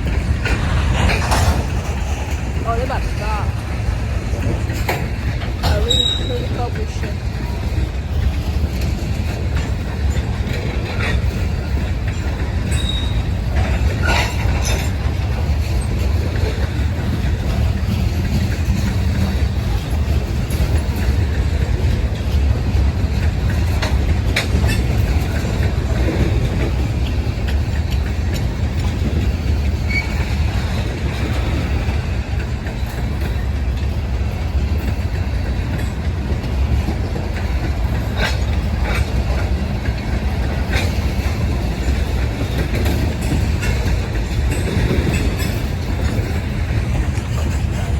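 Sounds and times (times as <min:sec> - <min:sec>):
train clanks and clicks: 0:00.0 - 0:47.9
train wheels rumbling on rail: 0:00.0 - 0:47.9
faint wheel squeals: 0:05.8 - 0:06.5, 0:12.7 - 0:13.3.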